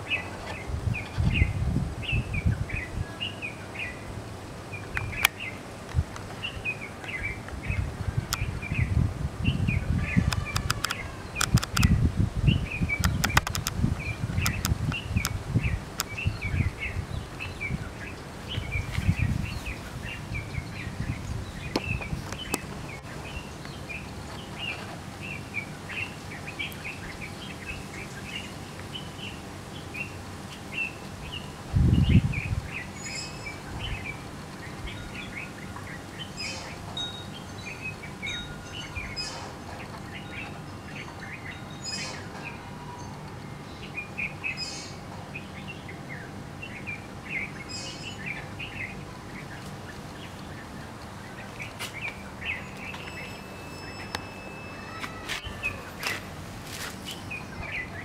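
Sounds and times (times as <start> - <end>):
small birds chirping: 0.0 - 58.0
high sharp bird calls: 8.3 - 29.2, 51.4 - 56.2.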